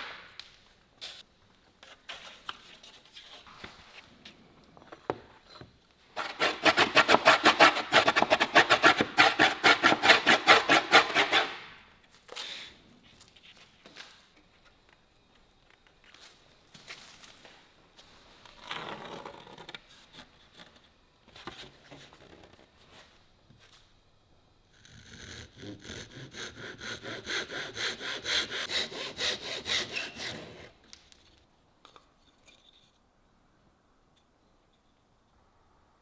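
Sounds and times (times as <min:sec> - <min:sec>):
hand saw cutting wood: 0:06.2 - 0:11.7, 0:25.0 - 0:30.8.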